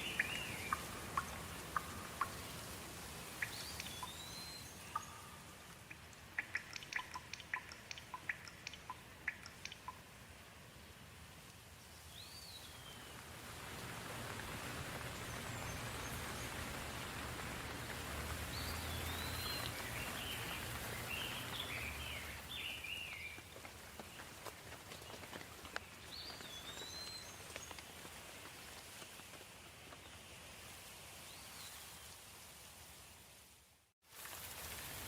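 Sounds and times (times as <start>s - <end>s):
bird chirping: 0.0s - 2.5s, 3.3s - 10.0s, 18.5s - 23.5s, 25.8s - 27.8s
soft rain with drips: 0.0s - 35.0s.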